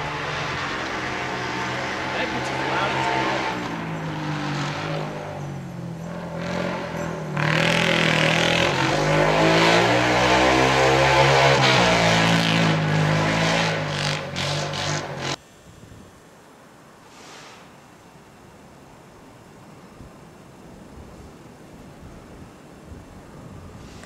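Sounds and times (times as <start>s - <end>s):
car engine revving: 0.0s - 15.4s
tires spinning in snow: 0.0s - 15.4s.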